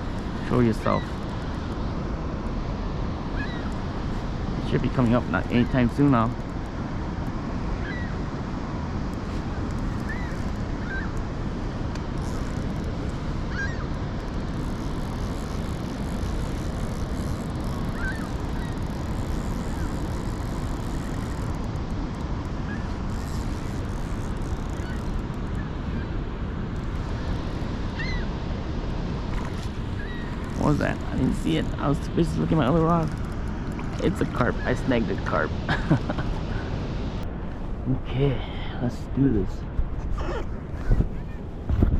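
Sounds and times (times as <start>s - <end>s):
faint short bird calls: 0.4s - 1.2s, 3.3s - 3.8s, 7.8s - 8.2s, 9.9s - 11.2s, 13.5s - 13.9s, 17.9s - 18.9s, 28.0s - 28.3s, 29.9s - 30.6s.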